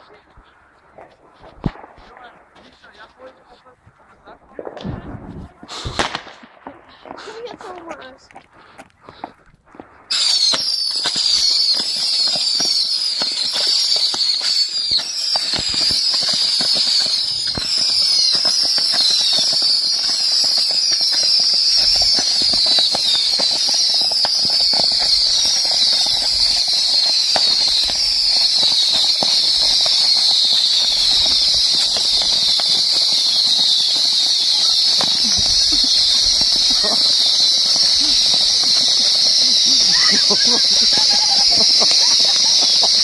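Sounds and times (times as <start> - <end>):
crackling pops: 0.0 - 43.0
whistling rockets screeching: 10.1 - 43.0.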